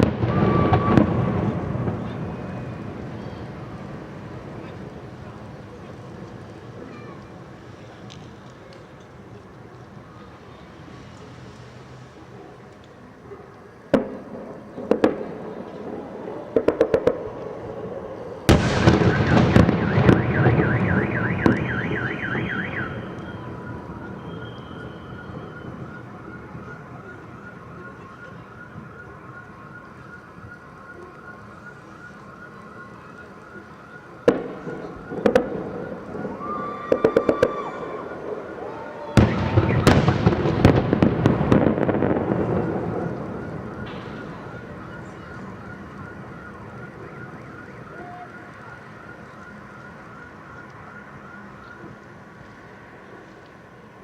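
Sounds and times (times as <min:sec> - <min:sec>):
car alarm: 0:00.0 - 0:04.5, 0:18.5 - 0:53.2
fireworks bangs and crackling: 0:00.0 - 0:52.4.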